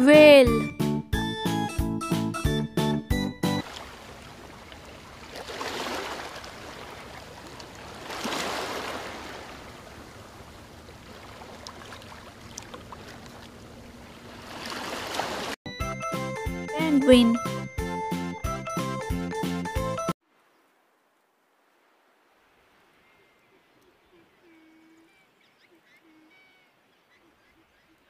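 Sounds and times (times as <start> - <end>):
rushing water: 3.6 - 15.6.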